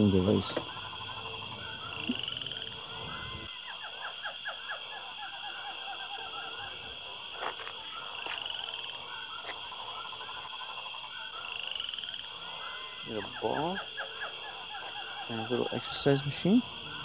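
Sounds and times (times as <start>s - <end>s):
frogs calling: 0.0s - 17.0s.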